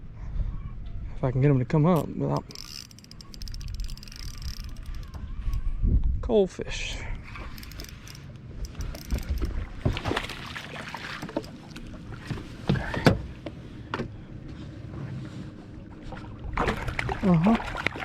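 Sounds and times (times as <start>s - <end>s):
wind on microphone: 3.4s - 10.1s
fish splashing: 7.3s - 12.2s, 16.5s - 18.0s.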